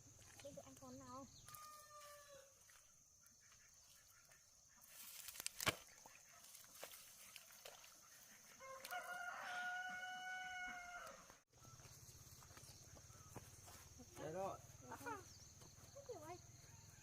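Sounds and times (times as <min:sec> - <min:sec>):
rooster crowing: 0:01.5 - 0:02.5, 0:08.6 - 0:11.4.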